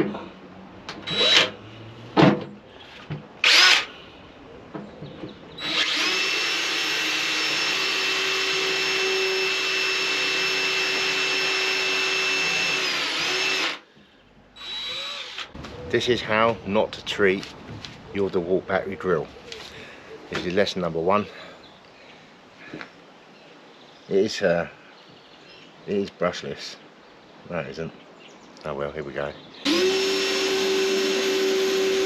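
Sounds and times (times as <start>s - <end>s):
cordless drill boring: 1.0s - 1.6s, 3.4s - 3.9s, 5.6s - 13.8s, 14.6s - 15.6s, 29.6s - 32.0s.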